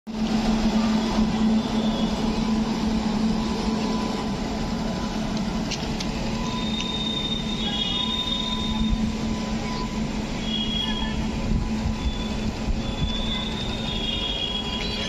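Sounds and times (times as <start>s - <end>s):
train hum and rumble: 0.1s - 15.0s
metallic wheel squeal: 1.4s - 2.7s, 6.4s - 15.0s.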